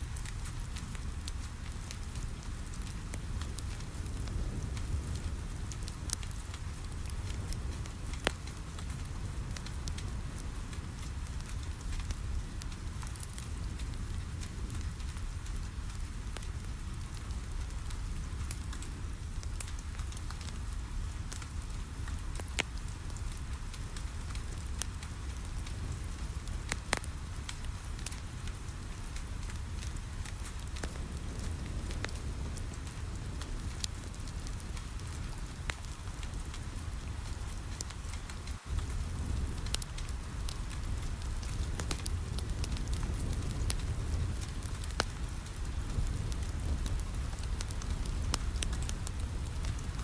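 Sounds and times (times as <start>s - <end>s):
rain pattering on a window: 0.0s - 50.0s
wood fire crackling and popping: 0.0s - 50.0s.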